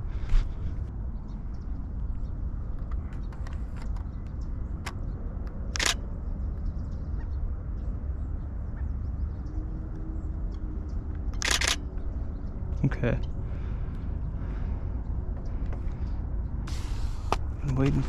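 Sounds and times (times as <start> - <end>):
low rumble: 0.0 - 18.0
camera shutter clicking: 5.7 - 6.0, 11.4 - 11.8.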